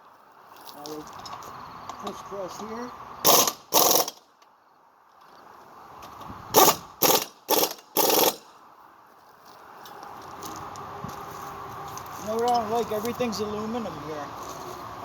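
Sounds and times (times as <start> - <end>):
power driver bursts: 3.3 - 4.2, 6.6 - 8.5.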